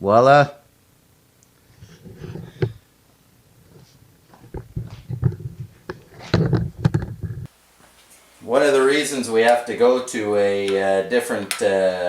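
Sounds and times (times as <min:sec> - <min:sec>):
metallic knocks of hand tools: 0:11.4 - 0:11.8.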